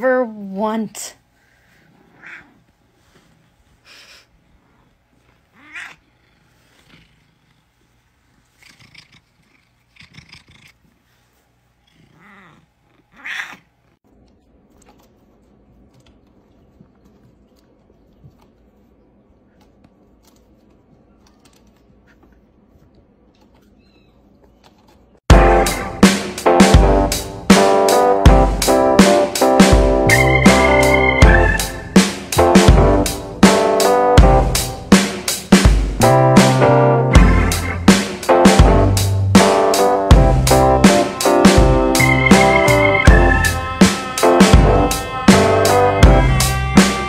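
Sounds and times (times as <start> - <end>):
cat calling: 2.1 - 2.6, 5.5 - 6.1, 11.9 - 13.7, 42.1 - 47.0
cat purring: 4.3 - 11.2, 11.8 - 13.6.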